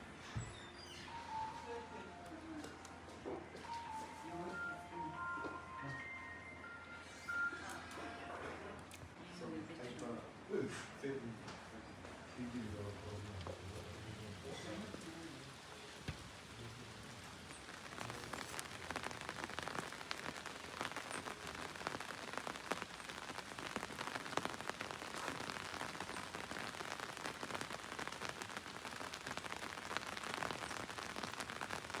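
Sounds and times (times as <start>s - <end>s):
rain pattering: 12.4s - 32.0s.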